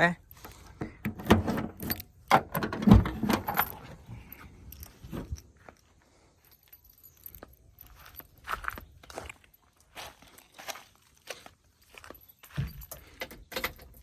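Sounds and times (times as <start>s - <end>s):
keys jangling: 1.7s - 2.3s, 3.2s - 9.9s, 11.8s - 14.0s.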